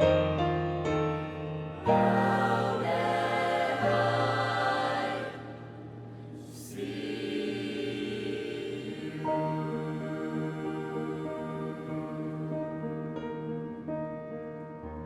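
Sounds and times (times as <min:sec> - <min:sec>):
vocal ensemble singing chords: 0:01.8 - 0:13.9.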